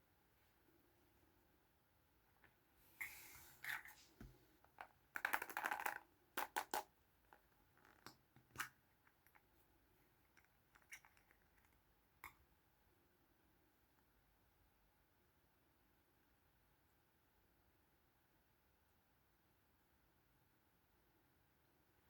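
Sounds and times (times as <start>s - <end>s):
plastic toys clattering: 4.8s - 6.8s
plastic toys clicking and tapping: 4.8s - 6.9s.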